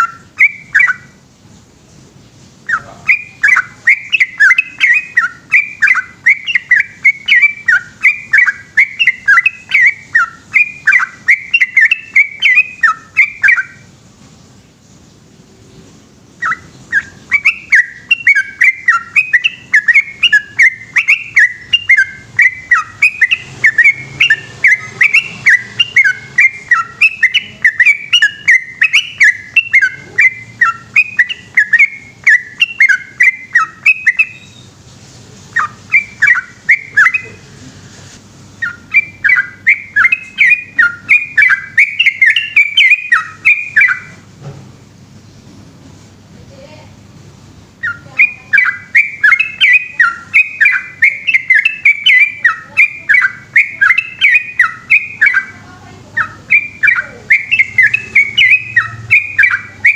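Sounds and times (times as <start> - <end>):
bird singing bubbly whistled notes: 0.0 - 1.2, 2.6 - 13.9, 16.4 - 34.8, 35.5 - 37.4, 38.6 - 44.2, 47.8 - 55.6, 56.2 - 59.9.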